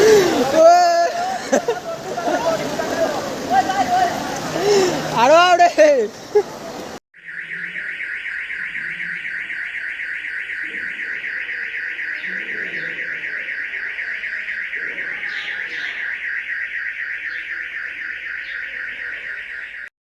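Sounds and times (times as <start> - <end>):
alarm pulsing high-pitched tone: 7.2 - 19.9.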